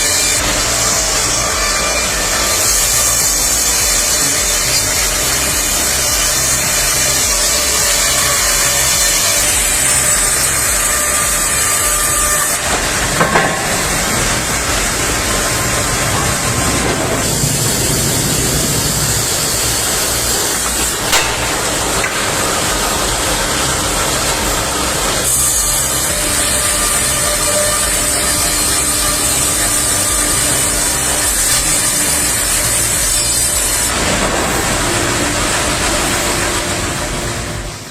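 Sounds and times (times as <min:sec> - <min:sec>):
wood-cutting machine rasping: 0:00.0 - 0:37.9
sharp knocks: 0:10.7 - 0:15.4, 0:21.0 - 0:24.6.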